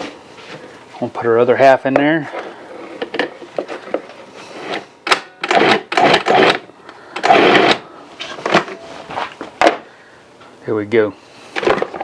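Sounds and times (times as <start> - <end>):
food processor pulsing: 5.4 - 7.8.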